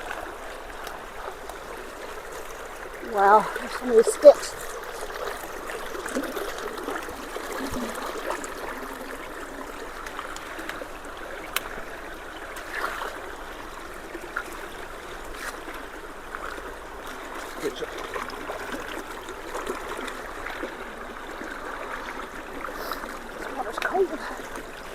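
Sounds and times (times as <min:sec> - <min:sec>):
creek water running through culvert: 0:00.0 - 0:24.9.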